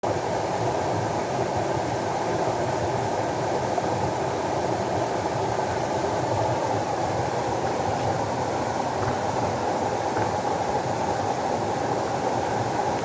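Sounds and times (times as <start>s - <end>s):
rushing flowing water: 3.1s - 13.0s.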